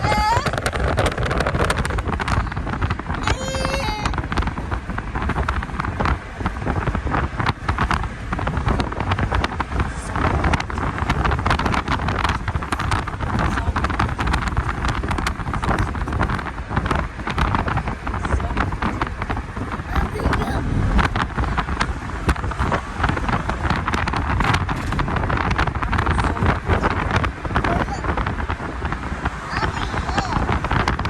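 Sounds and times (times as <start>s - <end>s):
wind buffeting microphone: 0.0s - 31.0s
low rumble: 17.2s - 27.6s.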